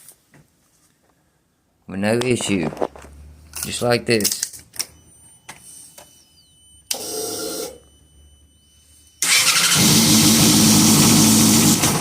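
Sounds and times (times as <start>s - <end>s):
motorcycle engine starting and running: 9.2s - 12.0s
starter whir: 9.2s - 12.0s.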